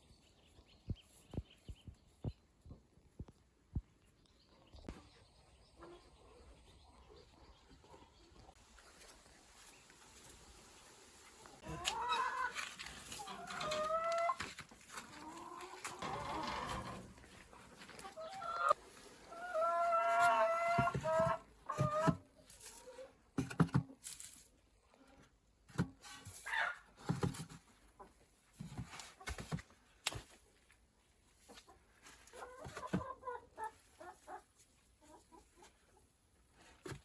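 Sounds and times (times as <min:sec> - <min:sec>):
chickens clucking: 0:04.6 - 0:08.9, 0:11.4 - 0:23.1, 0:31.4 - 0:37.0.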